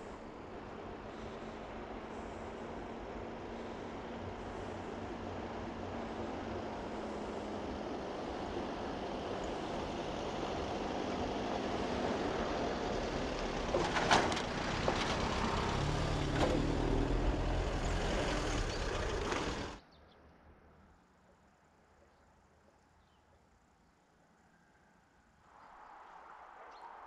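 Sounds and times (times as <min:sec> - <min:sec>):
electric train rumble: 0:00.0 - 0:19.8.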